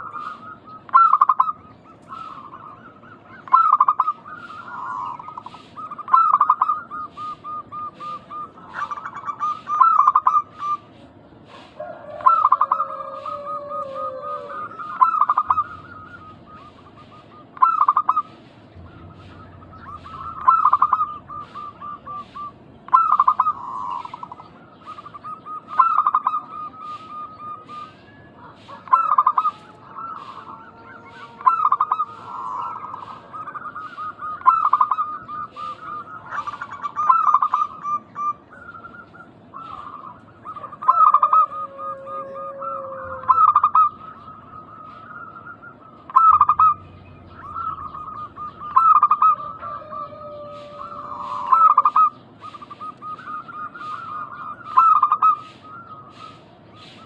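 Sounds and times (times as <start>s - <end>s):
doves cooing: 0.0s - 57.0s.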